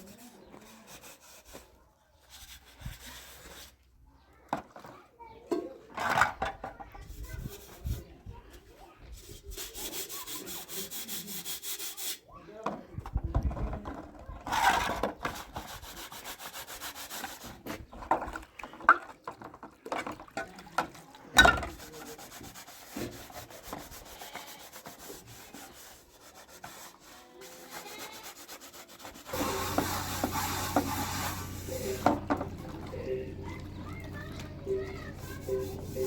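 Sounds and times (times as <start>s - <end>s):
rubbing and scraping: 0.0s - 3.9s, 6.0s - 12.2s, 13.1s - 18.8s, 21.4s - 32.6s, 33.4s - 36.0s
low hum: 29.4s - 36.0s.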